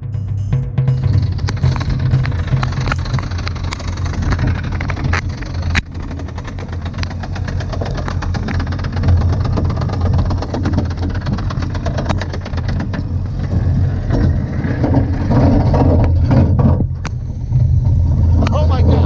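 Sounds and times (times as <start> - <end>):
roller coaster train rumbling: 1.4 - 19.0
roller coaster chain lift clicking: 1.6 - 16.3.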